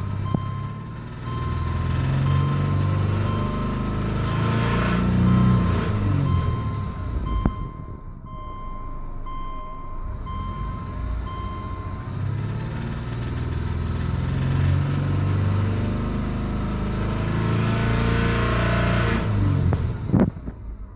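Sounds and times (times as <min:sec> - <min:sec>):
car warning chime beeping: 0:00.0 - 0:15.8
car engine running: 0:00.0 - 0:20.9.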